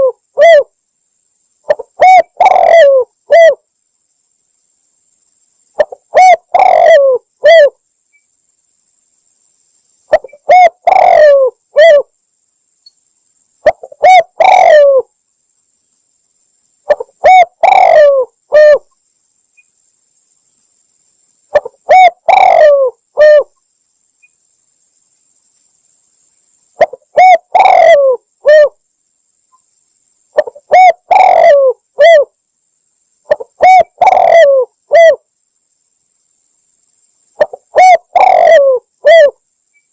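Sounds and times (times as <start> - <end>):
dove cooing: 0.0 - 0.7, 1.7 - 3.6, 5.8 - 7.8, 10.1 - 12.1, 13.6 - 15.1, 16.9 - 18.9, 21.5 - 23.6, 26.8 - 28.8, 30.4 - 32.3, 33.3 - 35.2, 37.4 - 39.4.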